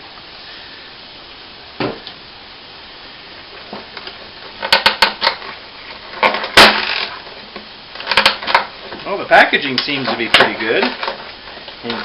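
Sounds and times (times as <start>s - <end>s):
dull thump: 1.8s - 2.1s
sharp clicks and rattles: 3.6s - 12.0s.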